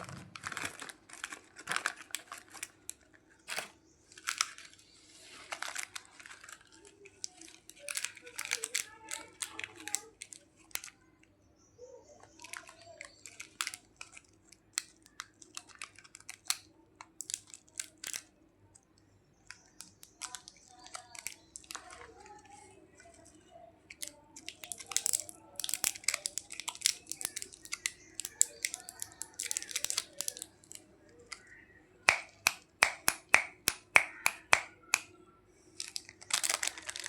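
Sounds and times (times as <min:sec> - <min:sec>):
plastic packaging crinkling: 0:00.0 - 0:11.1, 0:12.2 - 0:18.3, 0:19.4 - 0:37.0
sharp clicks: 0:32.1 - 0:35.1.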